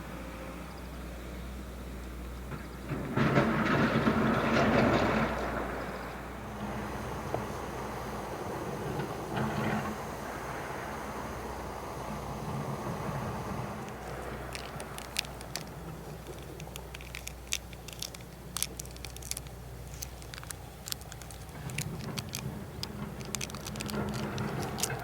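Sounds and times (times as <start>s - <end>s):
low background rumble: 2.9s - 25.0s
campfire crackling and popping: 13.8s - 25.0s.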